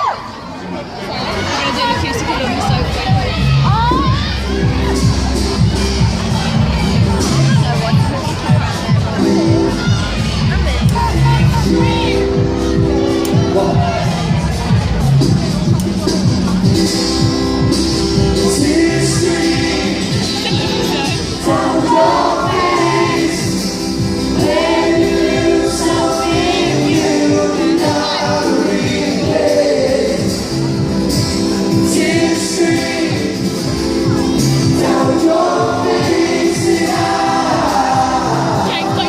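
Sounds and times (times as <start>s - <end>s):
amplified backing track with beat: 2.0s - 39.0s
vocal group singing in harmony: 16.6s - 39.0s.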